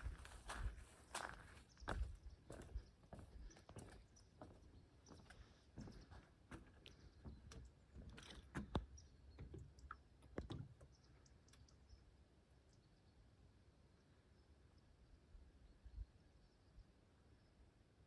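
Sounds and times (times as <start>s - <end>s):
faint footsteps: 0.0s - 8.8s.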